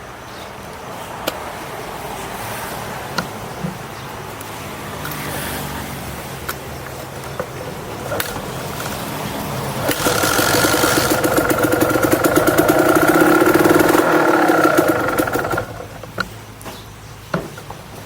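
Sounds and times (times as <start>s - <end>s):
motorcycle engine revving: 7.0s - 16.4s.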